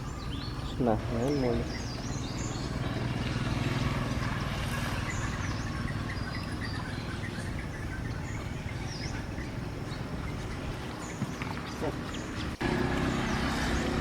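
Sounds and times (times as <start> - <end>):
high bird chirps: 4.8 - 12.6.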